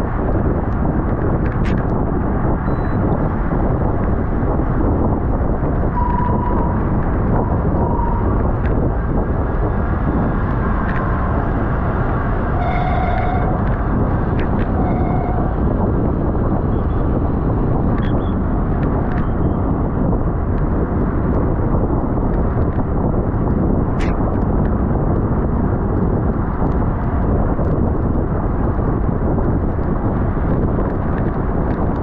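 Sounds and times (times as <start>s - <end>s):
wind rush over microphone: 0.0s - 32.0s
high squeak: 7.8s - 8.4s, 12.6s - 13.6s.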